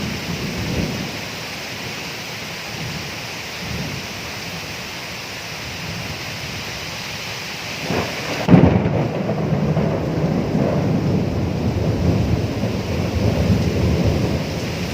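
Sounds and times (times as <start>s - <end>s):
thunderclap and rumble: 0.0s - 1.2s, 7.8s - 14.9s
steady rain: 0.0s - 14.9s.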